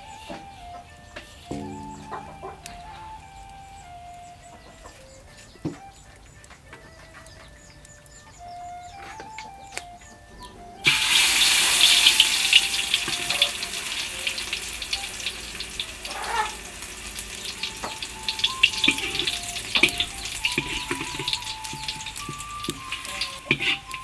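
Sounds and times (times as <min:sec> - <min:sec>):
food sizzling in hot pan: 0:10.8 - 0:24.0.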